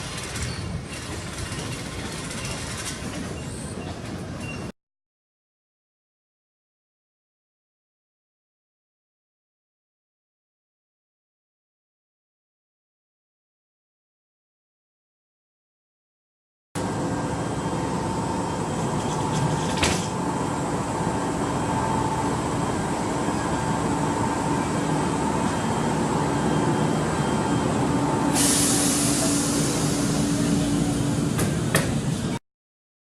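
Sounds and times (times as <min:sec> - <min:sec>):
train rumble: 0:00.0 - 0:04.7, 0:16.8 - 0:32.4
loud hiss: 0:28.2 - 0:31.4.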